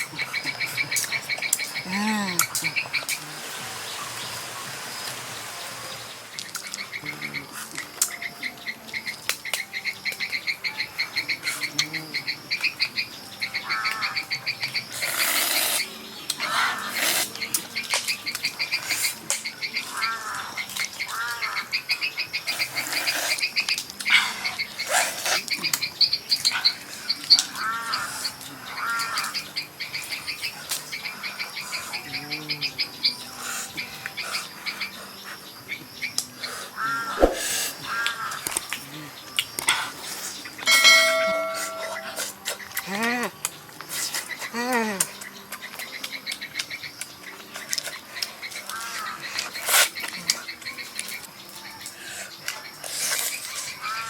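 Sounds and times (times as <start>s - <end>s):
frogs trilling in chorus: 0.0s - 54.0s
brief hiss: 37.2s - 37.7s.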